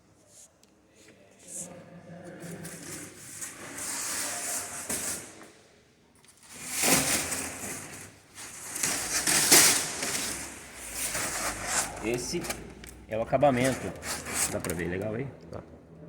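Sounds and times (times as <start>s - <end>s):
foam pieces rubbing and scraping: 6.4s - 15.1s.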